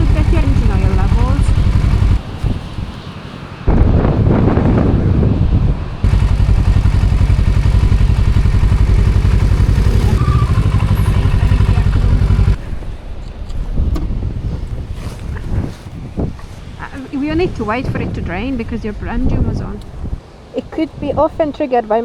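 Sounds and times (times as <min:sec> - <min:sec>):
motorcycle engine idling: 0:00.0 - 0:02.2, 0:06.0 - 0:12.6.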